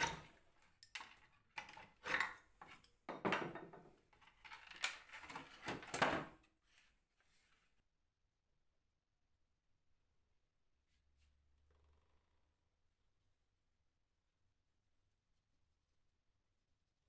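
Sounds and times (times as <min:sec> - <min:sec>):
wooden knocks: 0:03.1 - 0:03.9.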